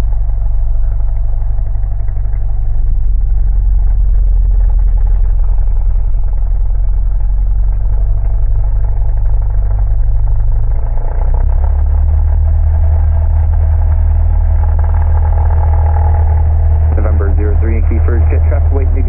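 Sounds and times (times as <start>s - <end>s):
aircraft piston engine drone: 0.0s - 19.0s.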